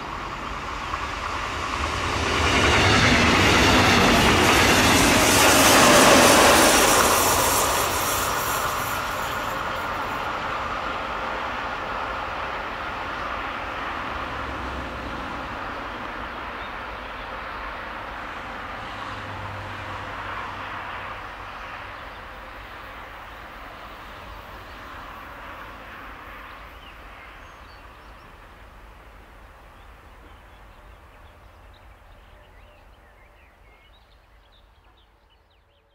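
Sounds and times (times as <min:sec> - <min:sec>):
train wheels on rails: 0:00.0 - 0:19.1.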